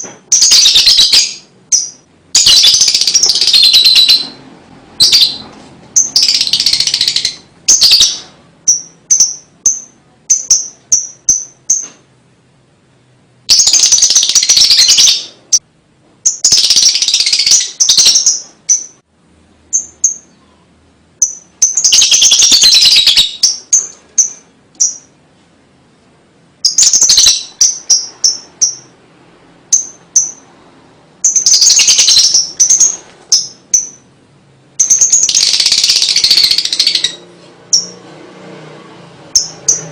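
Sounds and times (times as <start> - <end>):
bird high chirps: 0.0 - 12.0, 13.5 - 15.6, 16.2 - 19.0, 19.7 - 25.2, 26.6 - 29.0, 29.7 - 30.5, 31.2 - 34.1, 34.8 - 38.0, 39.3 - 39.9
lovebird shrill chattering: 0.3 - 4.4, 5.0 - 5.4, 6.0 - 11.9, 13.5 - 15.6, 16.2 - 19.0, 21.2 - 25.1, 26.6 - 28.9, 31.2 - 34.1, 34.8 - 38.0.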